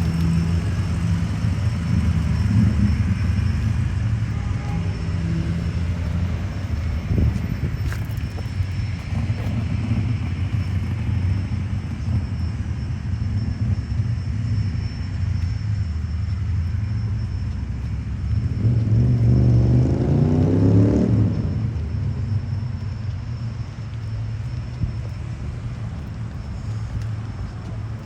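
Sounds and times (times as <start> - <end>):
car engines rumbling: 0.0 - 28.0
car accelerating past: 18.4 - 22.2.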